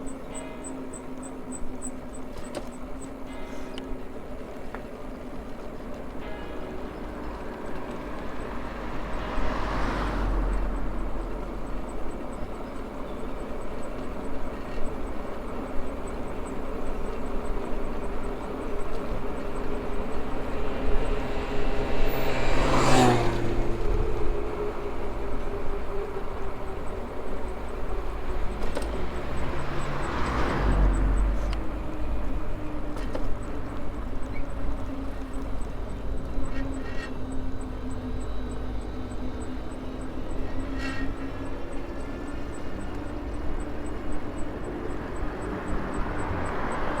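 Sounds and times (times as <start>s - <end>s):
rolling road noise: 0.0s - 47.0s
wind: 0.0s - 47.0s
faint regular ticking: 33.7s - 47.0s.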